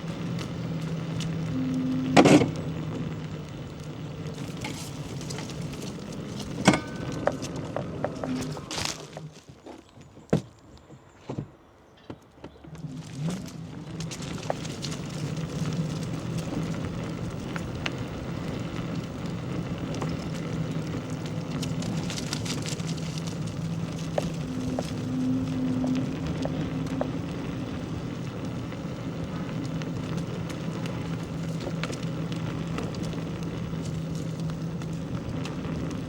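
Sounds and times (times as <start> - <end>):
crackling hiss: 0.0 - 9.4, 12.8 - 36.0
engine running: 0.0 - 9.5, 12.6 - 36.0.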